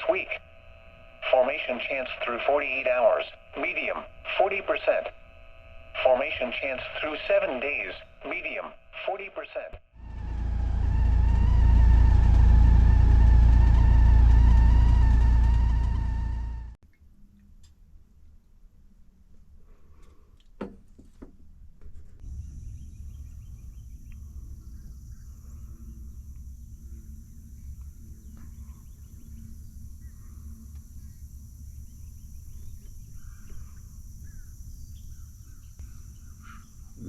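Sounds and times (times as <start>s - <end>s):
high-pitched hum: 0.0s - 16.8s, 22.2s - 37.0s
low rumble: 10.0s - 16.8s, 22.2s - 36.1s
bird chirps: 22.2s - 37.0s.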